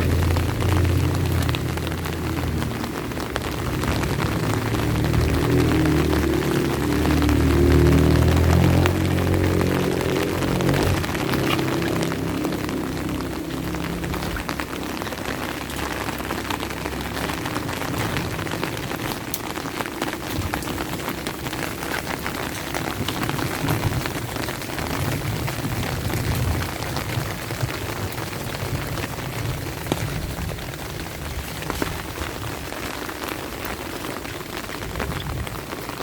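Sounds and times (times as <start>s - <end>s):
low rumble: 0.0s - 32.7s
rain drops ticking: 0.0s - 36.0s.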